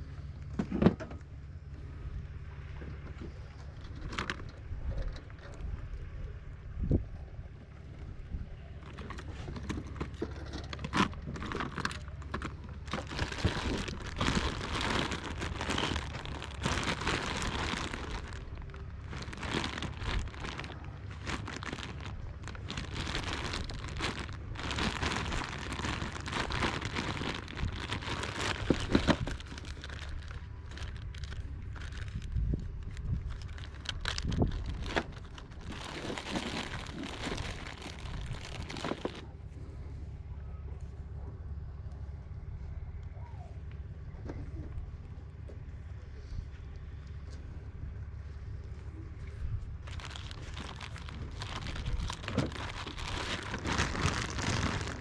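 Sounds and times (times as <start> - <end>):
steady low hum: 0.0 - 55.0
crinkling and rustling: 2.8 - 5.9, 8.7 - 39.3, 48.7 - 55.0.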